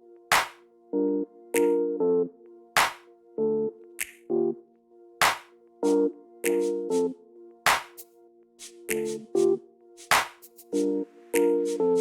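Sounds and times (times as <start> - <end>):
sharp clap-like hit: 0.3 - 0.6, 2.8 - 3.0, 5.2 - 5.5, 7.7 - 8.0, 10.1 - 10.4
synth chords: 0.9 - 8.1.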